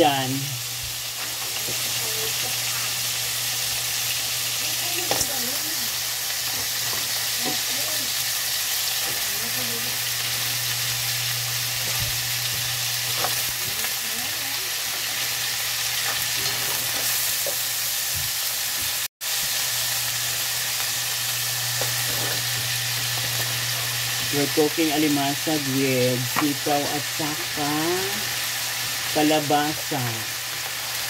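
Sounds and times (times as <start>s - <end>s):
food sizzling in a wok: 0.0s - 31.0s
wooden spatula scraping wok: 21.8s - 22.6s.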